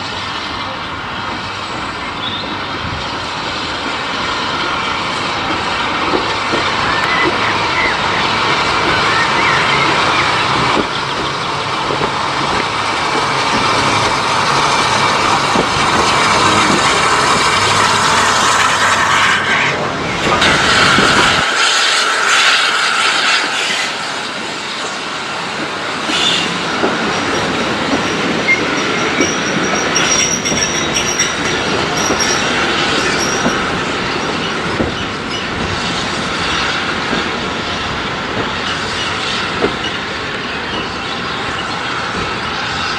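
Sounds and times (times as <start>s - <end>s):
low train rumble: 0.0s - 42.9s
train wheels clattering: 1.4s - 19.5s, 20.2s - 42.9s
wheel squeal: 28.4s - 35.6s.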